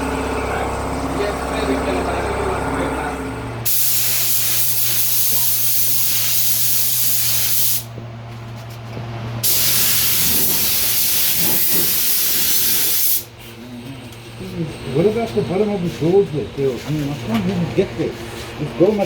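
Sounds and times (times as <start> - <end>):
spray gun hissing: 3.6 - 7.9, 9.4 - 13.3.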